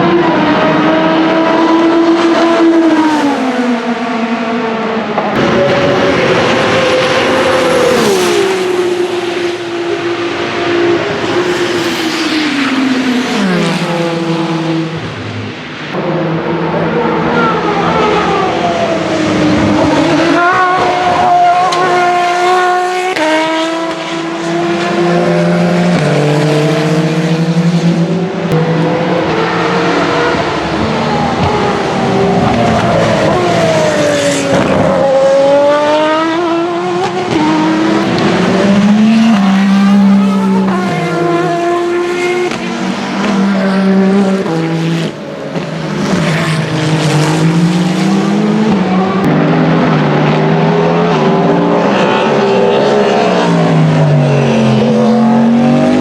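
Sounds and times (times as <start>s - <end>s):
race cars passing: 0.0s - 56.0s.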